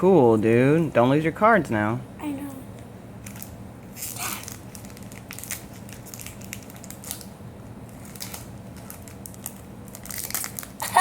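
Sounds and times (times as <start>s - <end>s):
foil wrapper crinkling: 3.2s - 11.0s.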